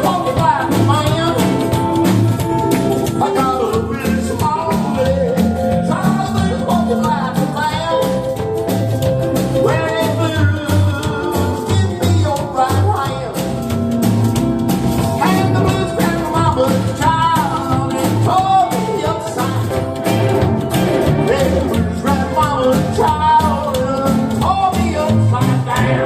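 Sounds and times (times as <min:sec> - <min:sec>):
bass line: 0:00.0 - 0:26.0
drum beat: 0:00.0 - 0:26.0
bending sliding melodic lines: 0:00.1 - 0:23.7.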